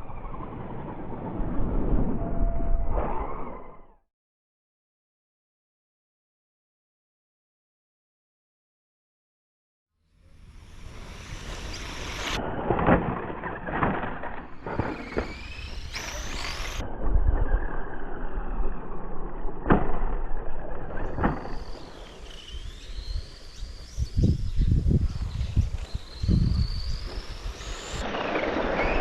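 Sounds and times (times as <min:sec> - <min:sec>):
electric motor whine: 0:10.3 - 0:12.4, 0:14.6 - 0:18.4, 0:21.2 - 0:29.0
toy cars landing on track: 0:11.7 - 0:16.8, 0:19.6 - 0:22.7.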